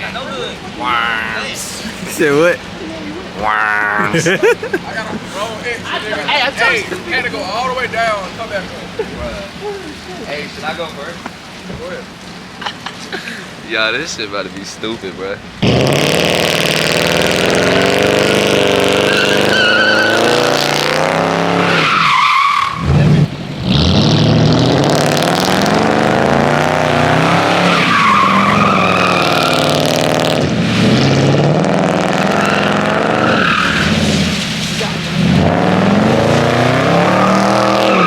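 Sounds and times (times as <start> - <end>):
tires squealing on wet pavement: 0.0 - 38.0
car engine revving hard: 15.6 - 38.0.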